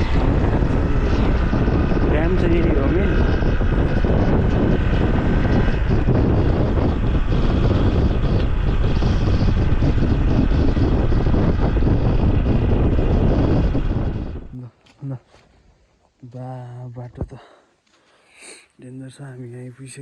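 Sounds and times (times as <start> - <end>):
motorcycle engine running: 0.0 - 14.5
wind rushing over microphone: 0.0 - 14.7.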